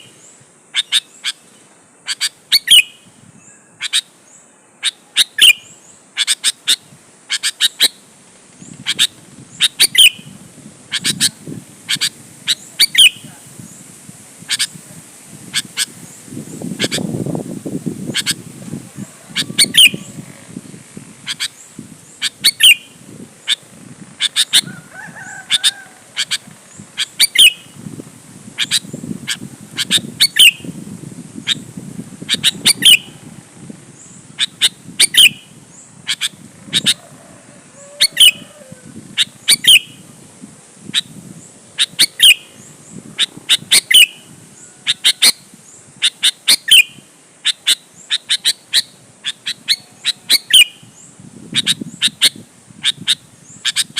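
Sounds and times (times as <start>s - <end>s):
bird singing sharp phrases: 0.0s - 8.0s, 8.6s - 13.9s, 41.0s - 53.9s.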